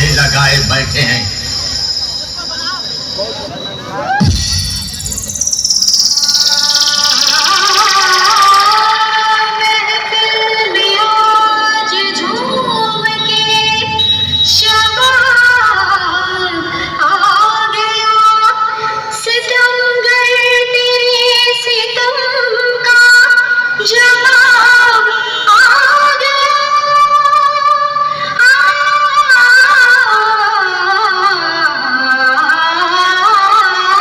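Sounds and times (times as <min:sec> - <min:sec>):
sharp drum hits: 0:04.2 - 0:05.9
woman singing: 0:07.0 - 0:34.0.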